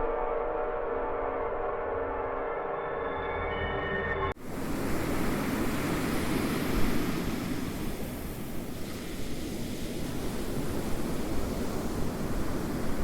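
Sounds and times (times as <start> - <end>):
wind: 0.0 - 13.0
ocean waves washing on shore: 4.4 - 13.0.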